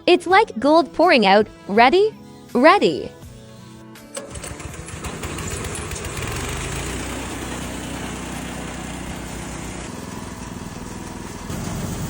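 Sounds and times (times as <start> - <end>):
threshing machine running: 4.1 - 12.0.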